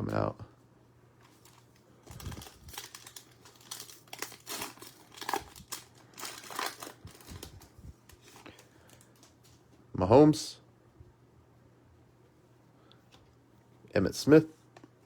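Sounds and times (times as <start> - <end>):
plastic wrapper crinkling and tearing: 1.2 - 9.5.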